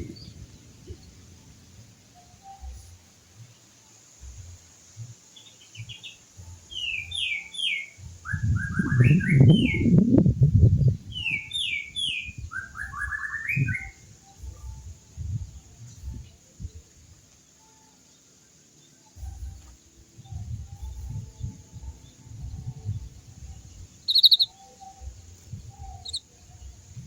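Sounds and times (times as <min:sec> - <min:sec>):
low rumbling noise: 0:00.0 - 0:03.3, 0:08.0 - 0:13.0, 0:19.2 - 0:24.4
canary singing trills: 0:02.1 - 0:16.8, 0:20.2 - 0:27.0.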